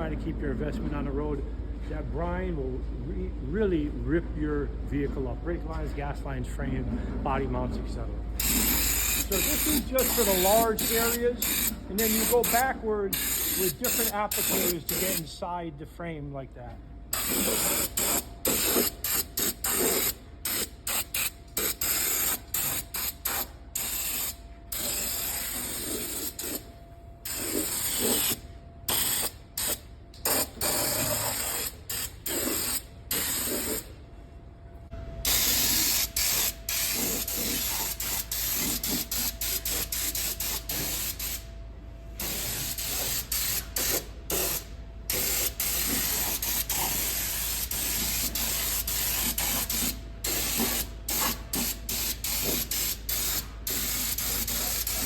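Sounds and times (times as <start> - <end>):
spray applicator hissing: 8.4 - 15.2, 17.1 - 26.7, 27.3 - 33.9, 35.3 - 41.5, 42.2 - 55.0.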